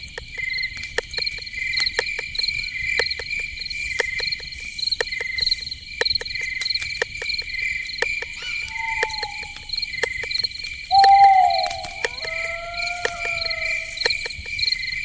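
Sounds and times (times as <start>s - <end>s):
crickets chirping: 0.0s - 15.0s
sharp clicks: 3.0s - 14.6s
whistled call: 8.3s - 10.0s, 10.9s - 14.3s.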